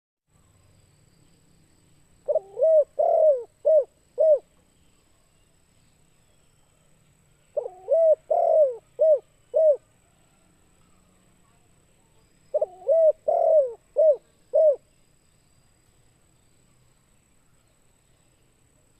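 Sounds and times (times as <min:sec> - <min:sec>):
dove cooing: 0:02.3 - 0:04.5, 0:07.6 - 0:09.9, 0:12.5 - 0:14.8.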